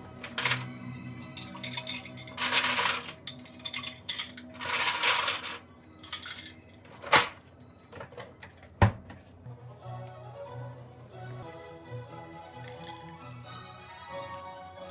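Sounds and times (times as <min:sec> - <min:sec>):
dishes and utensils clinking: 0:00.0 - 0:08.8.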